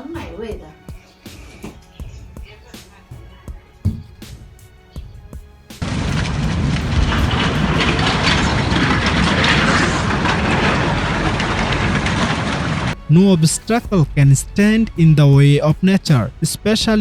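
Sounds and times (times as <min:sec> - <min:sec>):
deep rumble: 0:05.1 - 0:17.0
landslide roar: 0:05.8 - 0:17.0.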